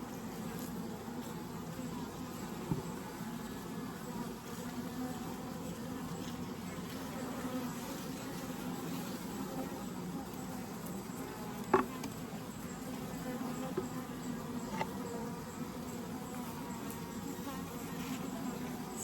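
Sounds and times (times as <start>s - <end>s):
honeybees buzzing: 0.0s - 19.0s.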